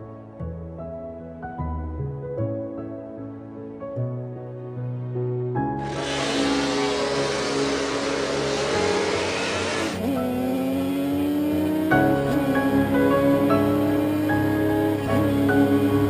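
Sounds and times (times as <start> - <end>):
background music: 0.0 - 16.0
engine note rising in pitch: 5.8 - 16.0
motorcycle engines revving: 5.9 - 16.0.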